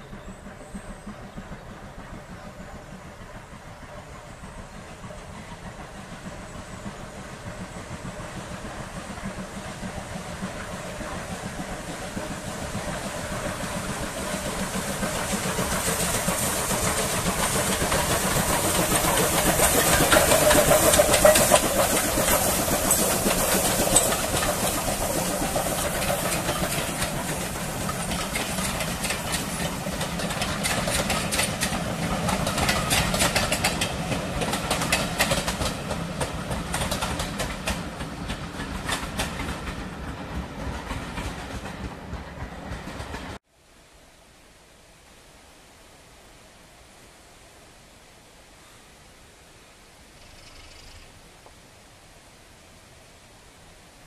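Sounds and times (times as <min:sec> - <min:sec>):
train passing: 0:00.0 - 0:43.5
wheels clicking over rail joints: 0:07.6 - 0:43.4.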